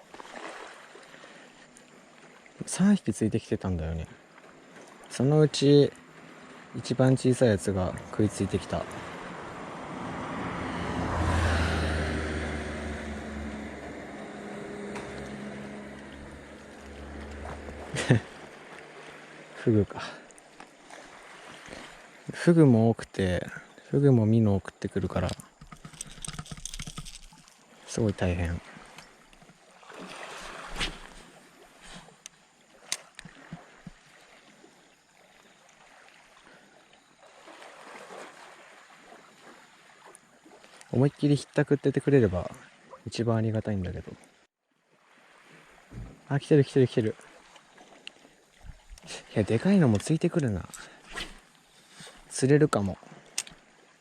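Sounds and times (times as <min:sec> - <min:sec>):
sea water sloshing: 0:00.0 - 0:02.6, 0:04.1 - 0:22.5, 0:25.0 - 0:41.2, 0:44.1 - 0:54.0
engine passing by: 0:07.6 - 0:19.6.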